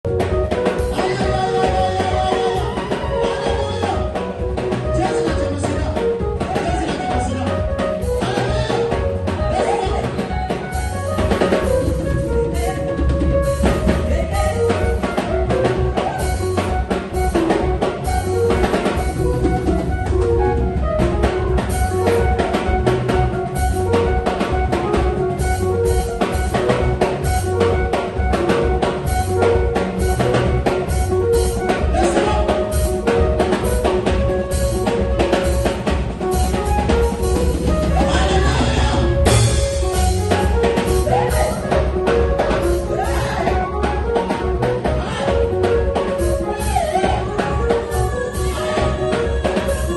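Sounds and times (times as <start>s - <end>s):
drum kit beat: 0.0s - 49.9s
sustained bass and keyboard tones: 0.0s - 49.9s.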